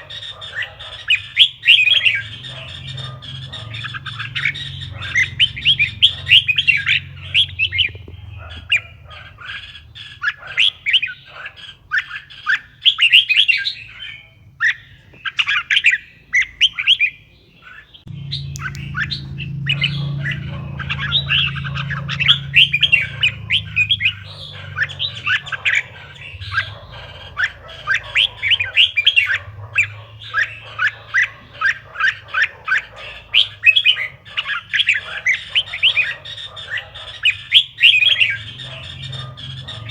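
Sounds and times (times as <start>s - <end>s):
bulbul chirping song: 0.0s - 39.9s
low steady hum: 18.1s - 30.8s.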